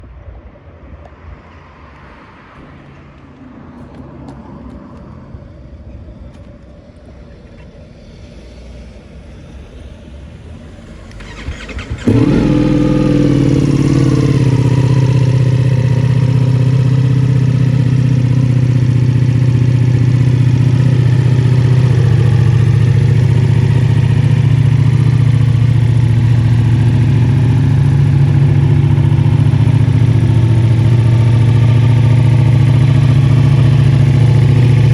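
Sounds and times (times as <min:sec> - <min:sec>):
motorcycle engine starting and idling: 0:11.0 - 0:34.9.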